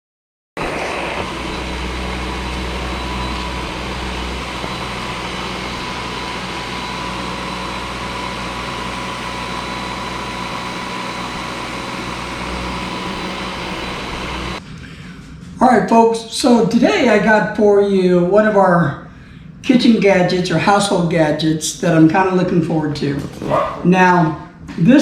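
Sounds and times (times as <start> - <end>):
mechanical drone with low hum: 0.6 - 15.6
thin high whine: 0.6 - 15.9.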